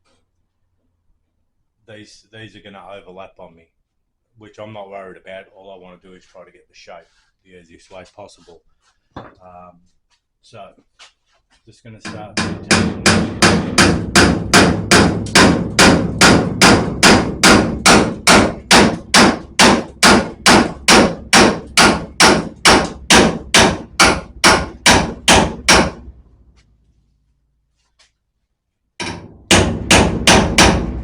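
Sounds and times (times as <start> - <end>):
hammer blows on sheet steel: 12.0 - 26.2, 29.0 - 31.0.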